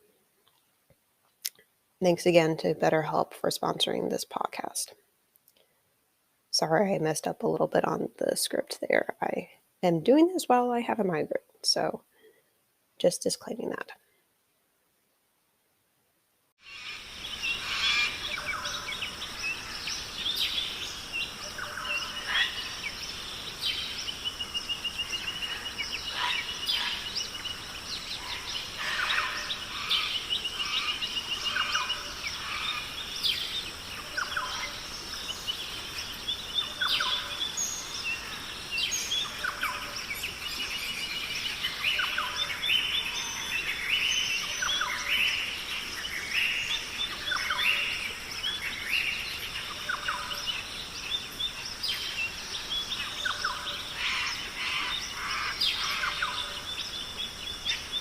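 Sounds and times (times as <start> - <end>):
birds chirping and calling: 16.6 - 58.0
high insect drone: 16.6 - 58.0.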